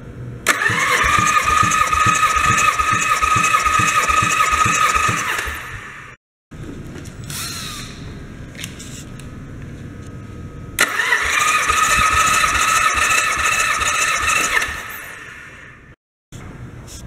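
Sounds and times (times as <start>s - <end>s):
high engine whine: 0.0s - 7.1s, 8.0s - 16.9s
car engine starting and running: 0.5s - 6.2s, 10.8s - 15.9s.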